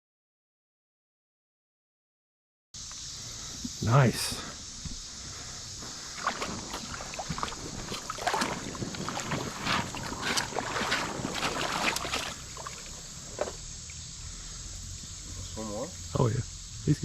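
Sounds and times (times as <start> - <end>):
creek water splashing: 5.2 - 13.6.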